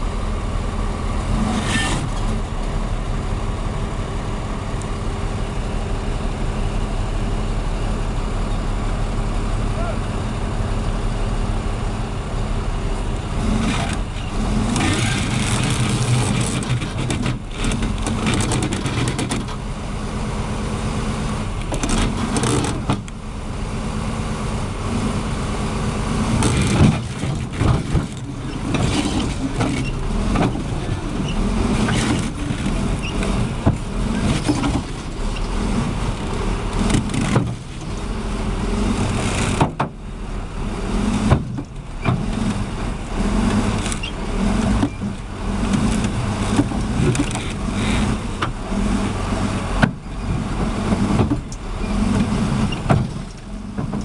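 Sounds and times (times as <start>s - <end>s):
heavy vehicle engines running: 0.0s - 54.0s
knocks and clatters: 13.6s - 19.6s, 21.6s - 23.1s, 26.4s - 35.6s, 36.8s - 38.0s, 49.8s - 54.0s.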